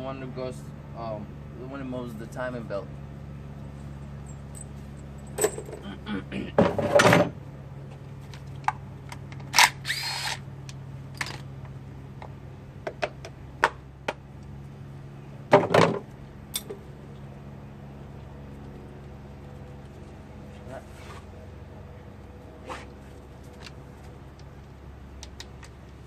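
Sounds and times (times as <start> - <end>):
steady low hum: 0.0 - 26.0
metal tools clinking: 4.1 - 5.9, 16.5 - 16.8
power tool running: 9.6 - 10.4.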